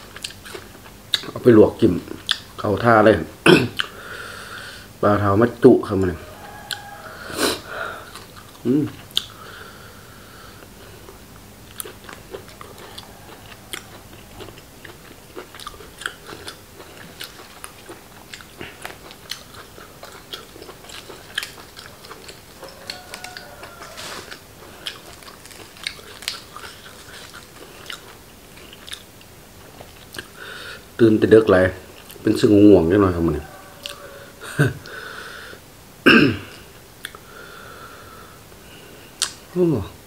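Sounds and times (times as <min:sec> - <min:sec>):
man chewing and biting: 0:00.0 - 0:01.4, 0:08.0 - 0:09.5, 0:10.6 - 0:30.4.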